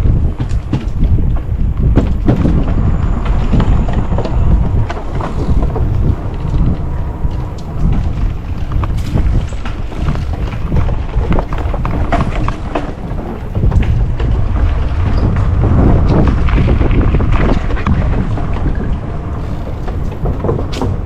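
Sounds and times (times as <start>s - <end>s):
mountain bike rolling on dirt: 0.0s - 21.0s
tyres clicking and rattling over roots: 0.0s - 21.0s
wind buffeting microphone: 0.0s - 21.0s.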